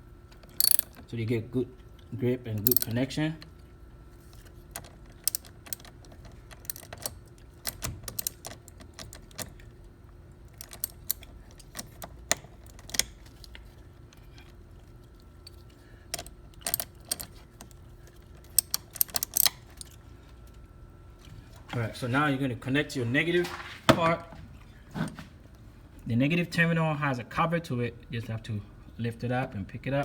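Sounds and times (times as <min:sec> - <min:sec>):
ratchet wrench clicking: 0:00.6 - 0:01.0, 0:02.6 - 0:03.0, 0:18.5 - 0:19.6.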